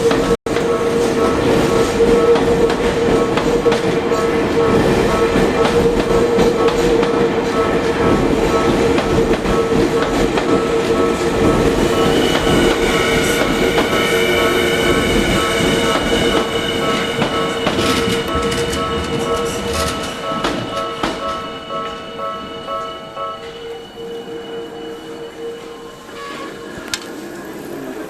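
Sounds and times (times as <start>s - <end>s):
crossing warning bell: 0.0s - 27.7s
electric train running slowly: 0.0s - 28.0s
wheels clicking over rail joints: 26.2s - 28.0s.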